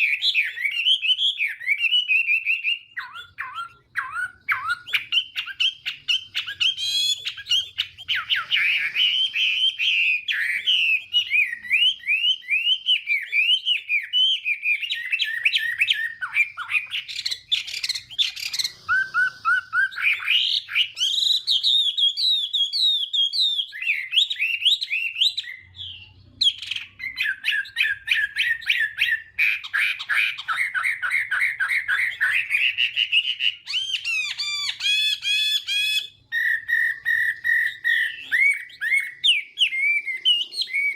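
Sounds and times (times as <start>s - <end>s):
bird singing whistled notes and trills: 0.0s - 40.9s.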